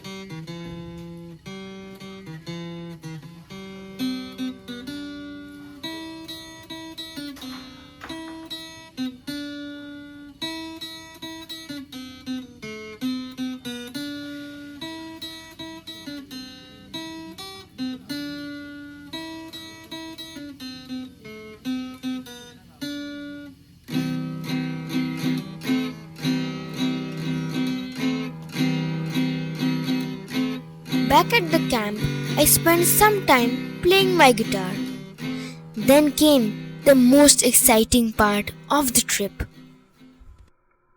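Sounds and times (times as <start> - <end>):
acoustic guitar picked melody: 23.8 - 39.5
acoustic guitar strummed chords: 28.7 - 39.5.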